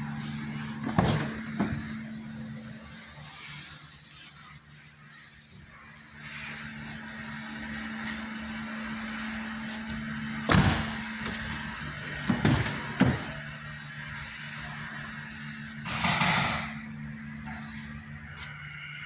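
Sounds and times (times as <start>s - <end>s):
hiss: 0.0s - 11.6s
low mechanical hum: 0.0s - 19.0s
loud thumps: 0.8s - 2.1s, 10.5s - 13.6s.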